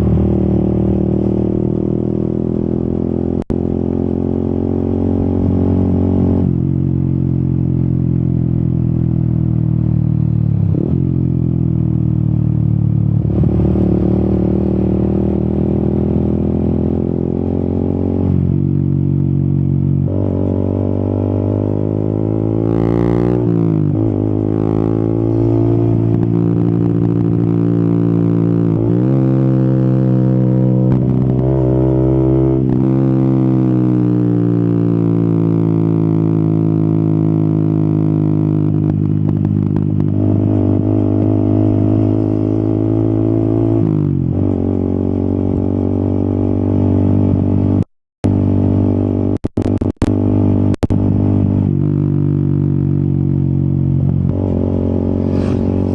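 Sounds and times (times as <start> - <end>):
motorcycle engine shifting gears: 0.0 - 55.9
engine revving quickly: 54.3 - 55.9.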